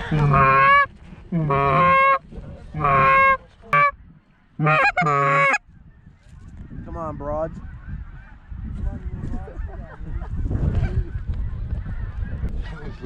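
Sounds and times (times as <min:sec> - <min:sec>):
goose call honks: 0:00.0 - 0:02.2, 0:02.8 - 0:04.0, 0:04.6 - 0:05.6.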